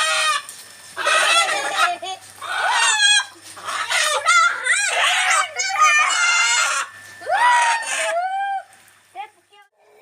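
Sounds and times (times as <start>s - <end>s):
chickens clucking: 1.0s - 6.9s.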